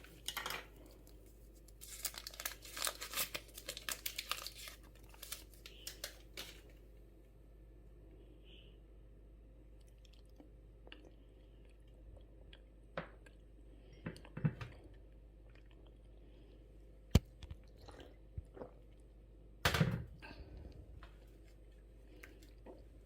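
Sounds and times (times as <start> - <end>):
chewing and wet mouth noises: 9.7 - 13.6, 14.2 - 16.6, 20.6 - 23.0.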